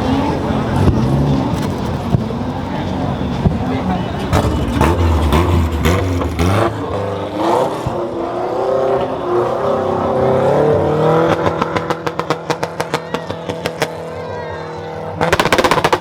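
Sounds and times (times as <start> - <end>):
car engine revving: 0.0 - 16.0
sharp exhaust pops: 15.2 - 16.0.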